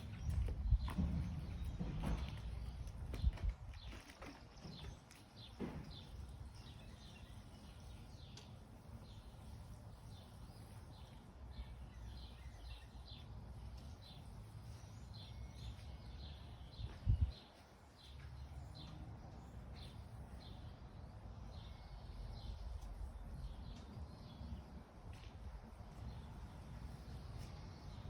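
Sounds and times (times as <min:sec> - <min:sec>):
small songbirds chirping: 0:00.0 - 0:28.0.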